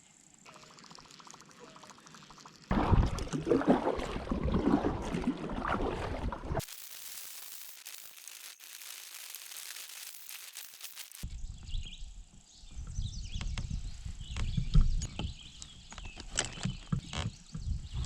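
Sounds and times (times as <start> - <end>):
water splashing off paddle: 2.7 - 6.6
wind buffeting microphone: 11.3 - 15.5.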